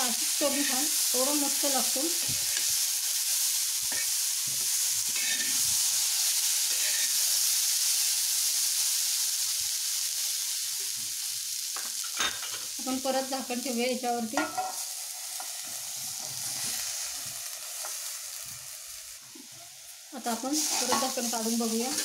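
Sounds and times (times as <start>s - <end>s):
corn kernels sizzling: 0.0s - 22.0s
metal spatula scraping: 5.1s - 5.7s, 6.7s - 7.2s, 20.6s - 21.2s.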